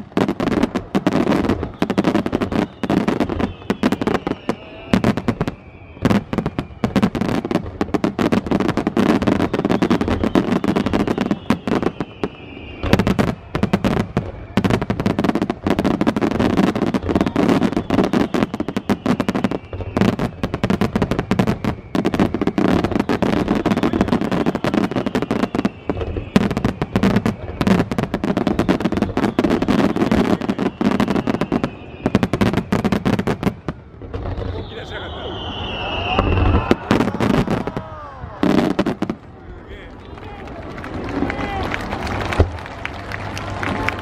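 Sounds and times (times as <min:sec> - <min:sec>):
fireworks crackling and popping: 0:00.0 - 0:44.0
heavy firework bangs: 0:00.0 - 0:44.0
faint falling whistle: 0:01.1 - 0:07.6, 0:09.0 - 0:15.2, 0:16.8 - 0:33.1, 0:34.4 - 0:39.1.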